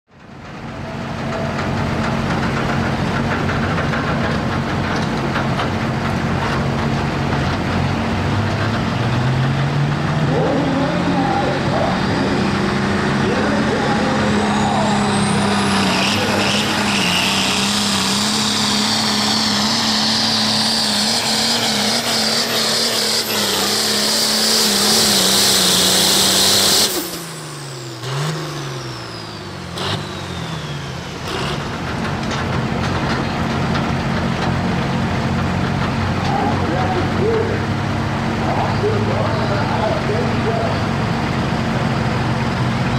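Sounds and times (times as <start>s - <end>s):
diesel tractor engine under load: 0.1s - 42.9s.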